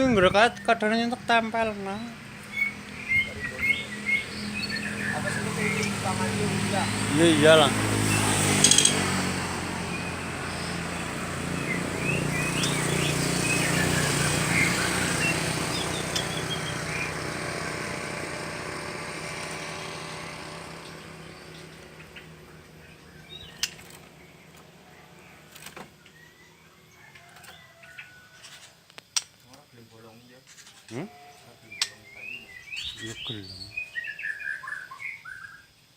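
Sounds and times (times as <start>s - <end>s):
vehicle engine running: 0.0s - 26.0s
small birds chirping: 0.0s - 35.9s.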